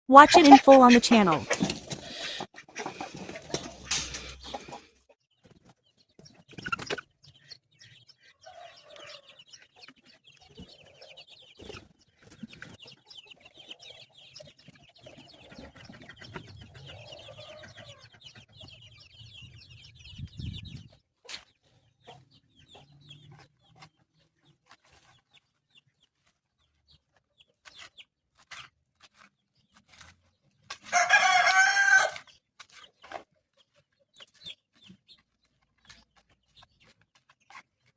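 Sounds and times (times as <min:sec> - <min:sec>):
chickens clucking: 0:00.1 - 0:37.9
chicks peeping: 0:00.2 - 0:37.9
rooster crowing: 0:30.9 - 0:32.2.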